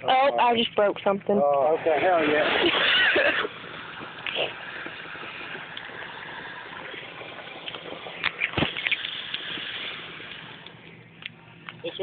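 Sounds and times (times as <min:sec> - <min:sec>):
ground firework hissing: 0:01.4 - 0:11.0
sharp pops: 0:02.4 - 0:11.4.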